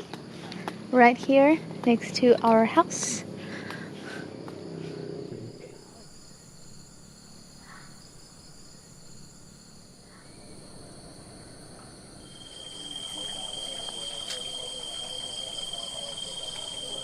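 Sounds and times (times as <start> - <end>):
insects chirring: 1.0 - 17.0.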